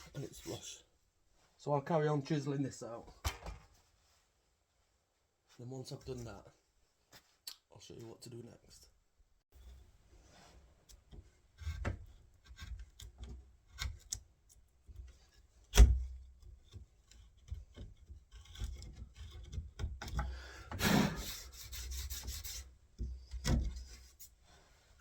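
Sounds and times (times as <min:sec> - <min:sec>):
chisel tapping and scraping wood: 0:10.9 - 0:14.2, 0:16.4 - 0:20.3.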